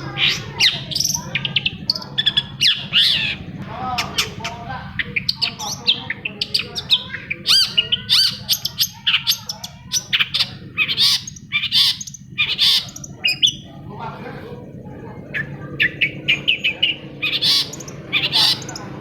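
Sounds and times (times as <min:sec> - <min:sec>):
harsh bird squawking: 0:00.0 - 0:19.0
bird singing chirps and whistles: 0:04.0 - 0:13.7.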